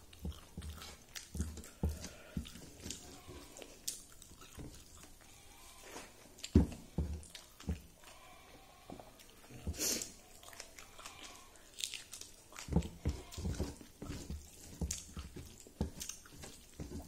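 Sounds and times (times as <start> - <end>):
person chewing rice: 0.0 - 17.0
wet lip smacks and clicks: 10.0 - 12.7.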